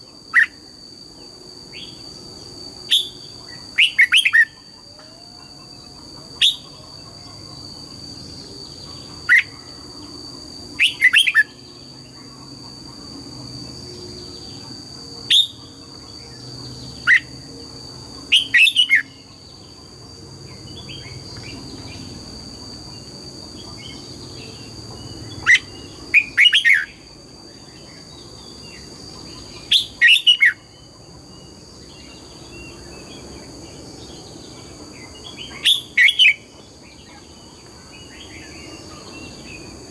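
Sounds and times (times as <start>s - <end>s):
bird singing whistled notes: 2.9s - 4.6s, 10.8s - 11.6s, 15.3s - 15.7s, 18.3s - 19.3s, 25.3s - 27.0s, 29.6s - 30.7s, 35.4s - 36.5s.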